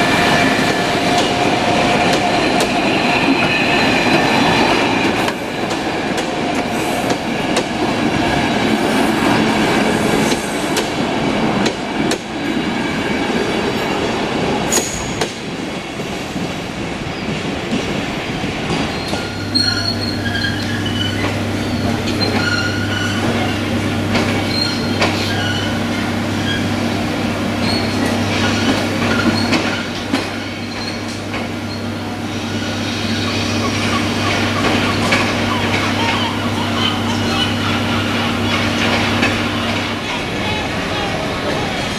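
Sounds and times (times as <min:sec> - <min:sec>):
train wheels squealing on rails: 0:00.0 - 0:05.8, 0:14.7 - 0:17.4, 0:18.7 - 0:26.8, 0:27.6 - 0:41.9
wheels clicking over rail joints: 0:33.8 - 0:40.1.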